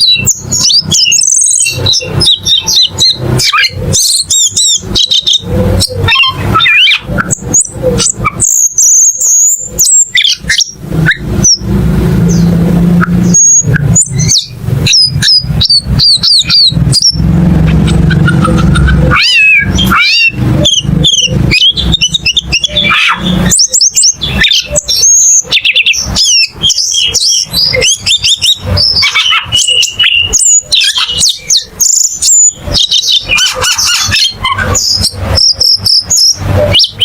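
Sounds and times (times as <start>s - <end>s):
bird singing chirps and trills: 0.0s - 37.0s
low rumble: 10.7s - 22.4s.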